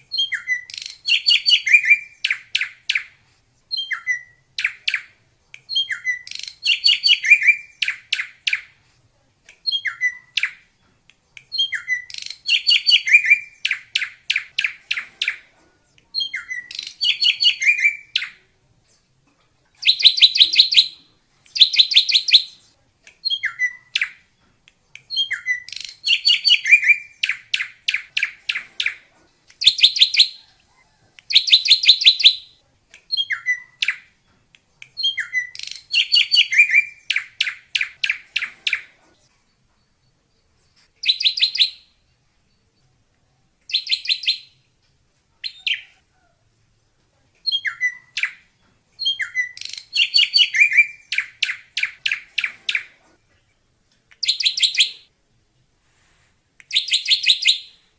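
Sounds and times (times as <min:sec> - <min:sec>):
bird singing whistled notes: 0:00.1 - 0:03.1, 0:03.7 - 0:08.7, 0:09.6 - 0:10.6, 0:11.5 - 0:15.4, 0:16.2 - 0:18.4, 0:19.8 - 0:22.6, 0:23.2 - 0:24.2, 0:25.0 - 0:28.6, 0:29.6 - 0:30.4, 0:31.3 - 0:34.0, 0:35.0 - 0:38.8, 0:41.0 - 0:41.9, 0:43.7 - 0:44.6, 0:47.5 - 0:48.4, 0:49.0 - 0:52.8, 0:54.2 - 0:55.1, 0:56.7 - 0:57.9.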